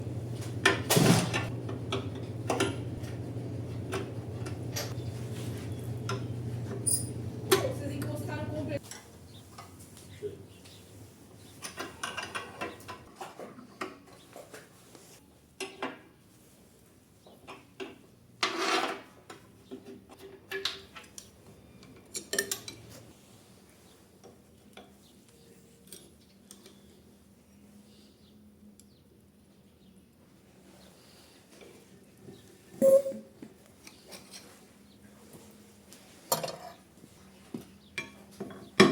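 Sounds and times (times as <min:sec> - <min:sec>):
steady low hum: 0:00.0 - 0:08.8
metal parts clicking and knocking: 0:21.9 - 0:22.9.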